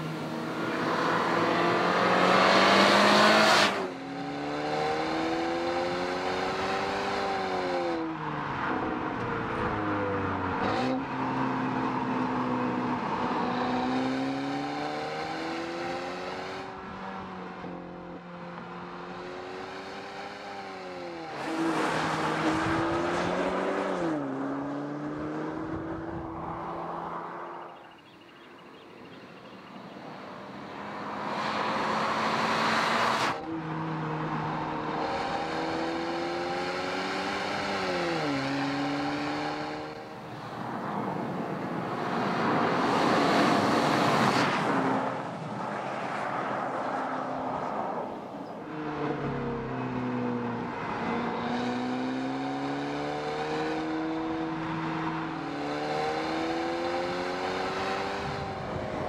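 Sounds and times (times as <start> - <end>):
car engine accelerating: 0.0 - 28.8, 29.4 - 47.6, 48.5 - 59.0
car passing with road and wind noise: 0.0 - 59.0.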